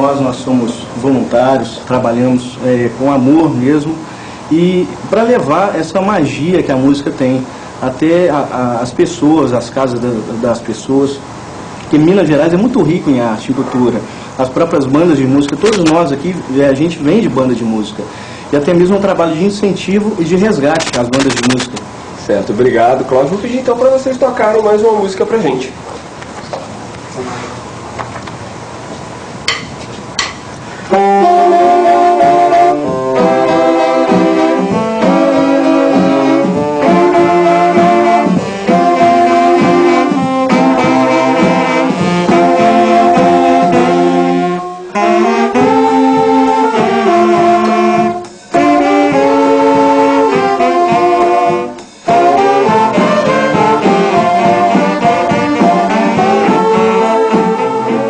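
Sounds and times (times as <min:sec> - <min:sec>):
saxophone-led wind group playing: 0:20.3 - 0:21.8, 0:30.8 - 0:58.0.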